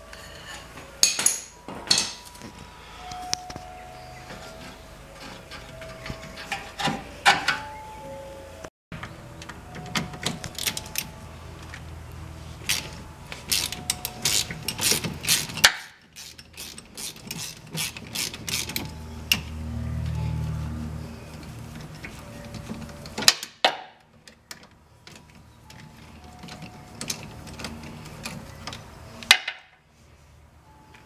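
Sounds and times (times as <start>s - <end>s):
metal squeaks and clatter: 0.0s - 8.0s, 12.6s - 23.6s, 24.2s - 29.3s
ratchet clicking on bolts: 13.5s - 18.9s.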